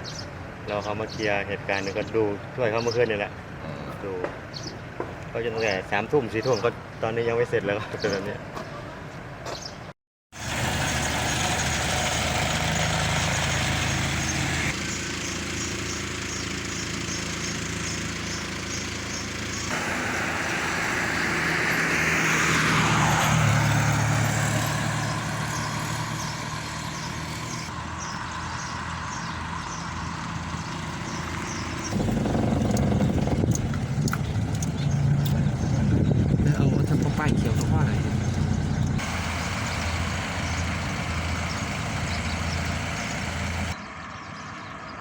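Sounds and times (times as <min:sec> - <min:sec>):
vehicle engines running: 0:00.0 - 0:09.7, 0:10.4 - 0:45.0
vehicle passing close by: 0:10.4 - 0:45.0.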